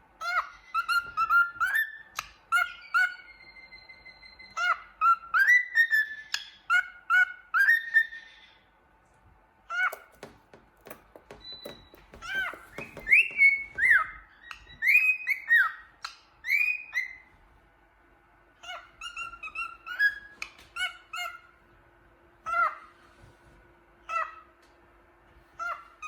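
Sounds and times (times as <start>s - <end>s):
cockatiel chirps: 18.6s - 21.5s.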